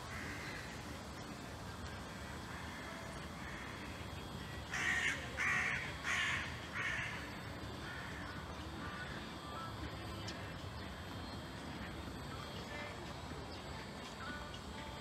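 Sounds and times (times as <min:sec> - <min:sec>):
bird harsh calls: 0:04.7 - 0:09.3.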